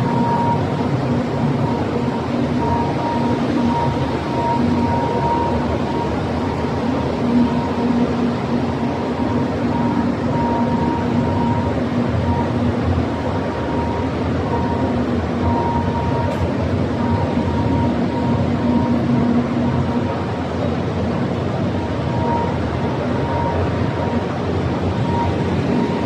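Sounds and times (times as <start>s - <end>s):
machinery low hum: 0.0s - 26.0s.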